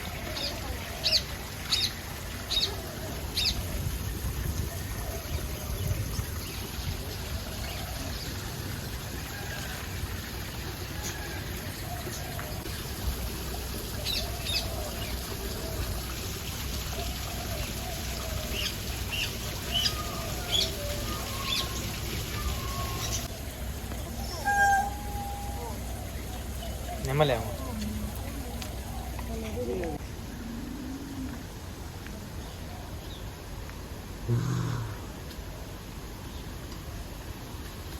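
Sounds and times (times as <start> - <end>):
faint wavering bird calls: 17.8 - 29.7
birds chirping: 18.5 - 30.0.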